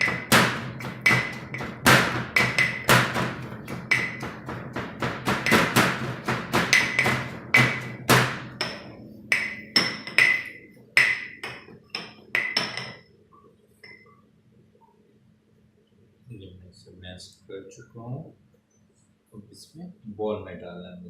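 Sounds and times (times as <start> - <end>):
peas being pounded in a vessel: 0.0 - 9.5.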